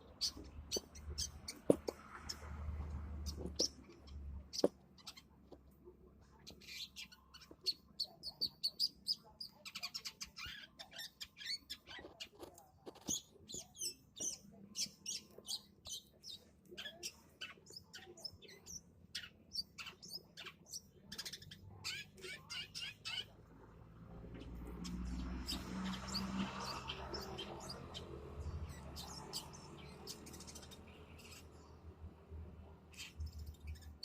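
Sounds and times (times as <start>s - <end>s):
shrike singing sharp chirps and trills: 24.4s - 31.9s.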